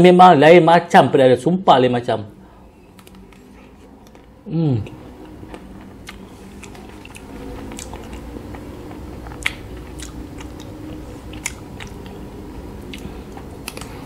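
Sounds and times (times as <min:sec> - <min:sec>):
wet chewing clicks and crunches: 0:05.2 - 0:12.2, 0:12.8 - 0:14.0
sharp mouth clicks: 0:09.3 - 0:10.8, 0:12.9 - 0:14.0.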